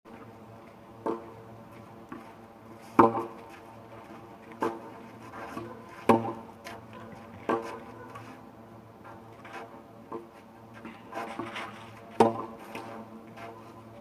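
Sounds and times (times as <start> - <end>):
tennis racket hitting ball: 2.9 - 3.4, 5.6 - 6.4, 11.3 - 12.9.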